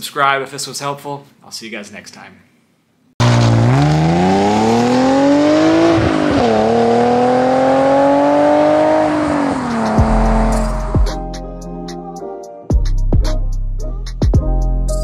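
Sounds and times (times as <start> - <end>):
car engine accelerating hard: 3.2 - 11.1.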